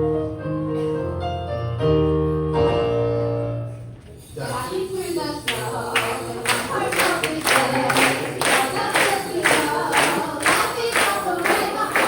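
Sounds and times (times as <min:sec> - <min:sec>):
voices singing: 0:04.4 - 0:12.0.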